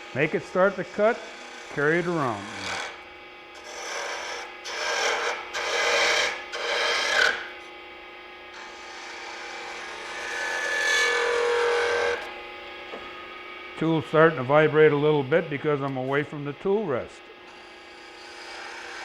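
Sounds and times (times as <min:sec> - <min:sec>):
gouge cutting wood on lathe: 0:00.0 - 0:03.0, 0:03.6 - 0:07.6, 0:08.5 - 0:12.3, 0:17.5 - 0:19.0.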